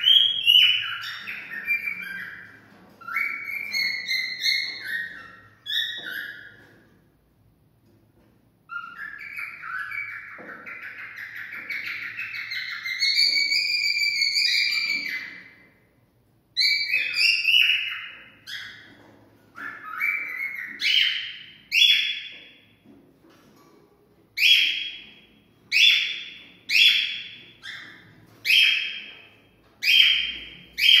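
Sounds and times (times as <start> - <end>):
cockatiel whistling: 0.0 - 6.6, 8.7 - 15.6, 16.6 - 18.9, 19.6 - 22.3, 24.4 - 25.0, 25.7 - 29.1, 29.8 - 31.0.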